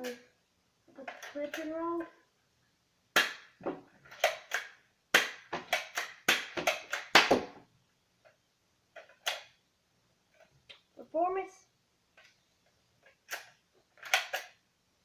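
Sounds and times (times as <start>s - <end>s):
toy dart blaster clicking: 13.3s - 14.6s.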